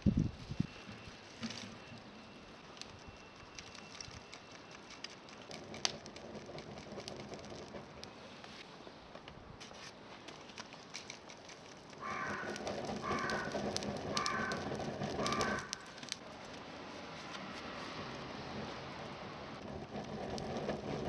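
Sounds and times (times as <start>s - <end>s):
small crackling clicks: 2.7s - 9.4s, 10.2s - 16.7s, 19.6s - 21.0s
crow cawing: 12.0s - 15.9s.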